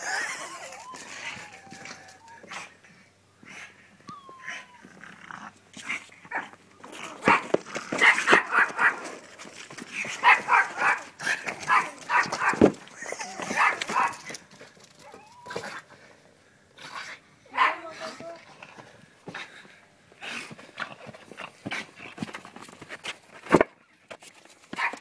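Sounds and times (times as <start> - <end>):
dog barking and yipping: 7.2 - 9.1, 10.2 - 12.7, 13.4 - 14.3, 17.5 - 17.9.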